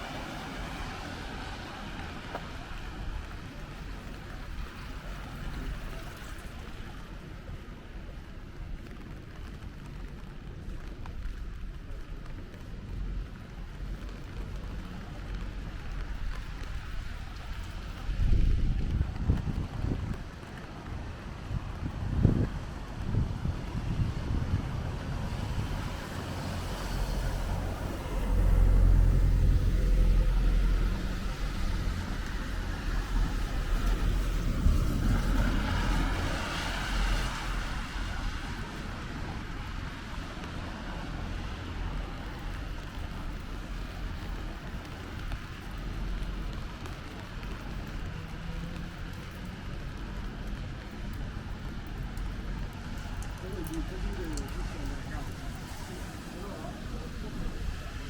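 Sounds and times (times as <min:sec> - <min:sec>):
low traffic rumble: 0:00.0 - 0:58.0
rain hissing on road: 0:00.0 - 0:58.0.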